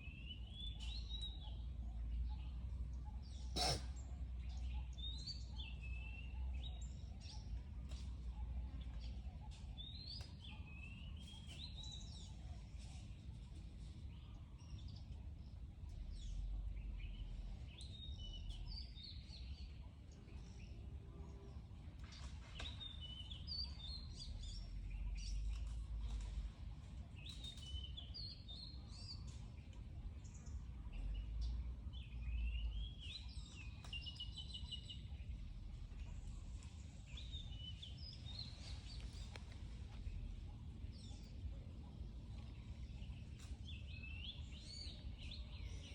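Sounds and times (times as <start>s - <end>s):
birds chirping: 0.0s - 45.9s
low outdoor rumble: 0.0s - 45.9s.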